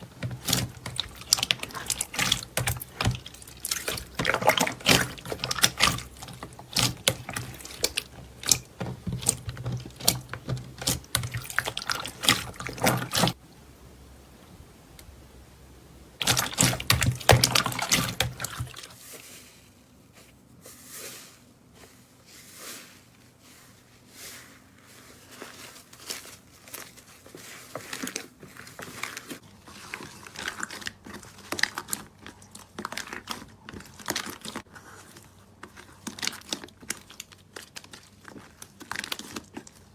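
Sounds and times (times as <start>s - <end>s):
slime squished by hand: 0.0s - 13.4s, 16.2s - 19.0s.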